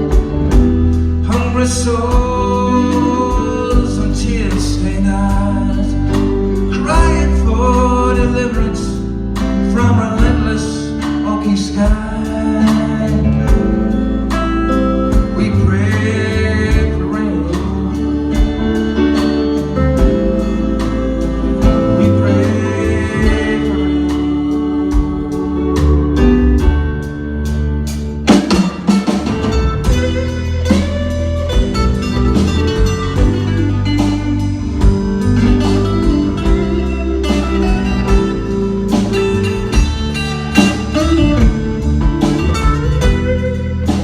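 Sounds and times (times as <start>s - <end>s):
live band playing blues-country: 0.0s - 44.0s.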